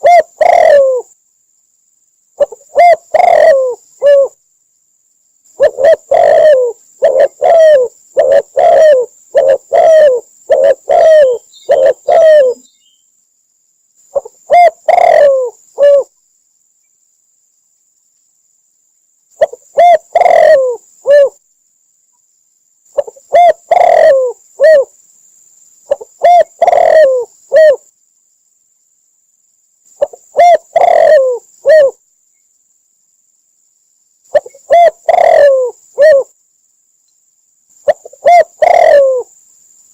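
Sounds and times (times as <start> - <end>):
dove cooing: 0.0 - 1.1, 2.4 - 4.4, 5.6 - 12.7, 14.1 - 16.1, 19.4 - 21.4, 22.9 - 24.9, 25.9 - 27.9, 30.0 - 32.0, 34.3 - 36.4, 37.8 - 39.3.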